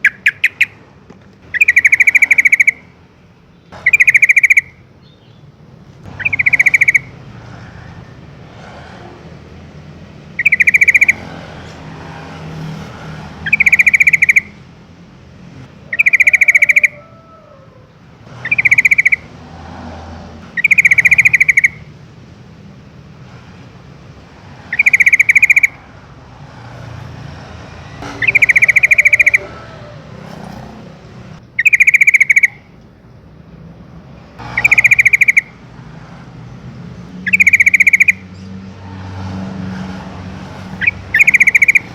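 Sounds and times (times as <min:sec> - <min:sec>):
bird calling: 0:00.0 - 0:08.9, 0:10.3 - 0:11.8, 0:13.3 - 0:14.6, 0:15.6 - 0:19.4, 0:20.4 - 0:21.9, 0:24.6 - 0:25.9, 0:27.9 - 0:33.0, 0:34.4 - 0:35.6, 0:37.2 - 0:38.6, 0:40.5 - 0:41.9.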